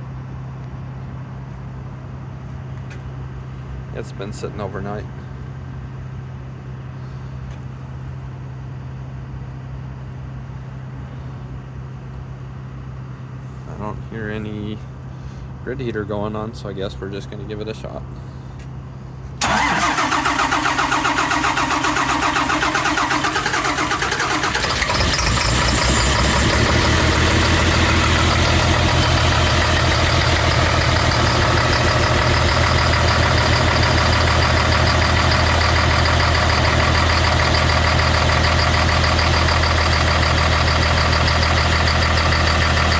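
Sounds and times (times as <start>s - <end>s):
diesel engine idling: 18.1s - 42.9s
starter motor cranking: 19.4s - 42.9s.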